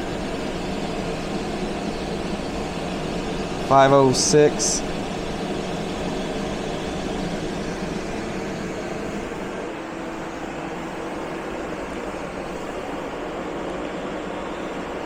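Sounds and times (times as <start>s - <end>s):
air conditioner blowing air: 0.0s - 15.0s.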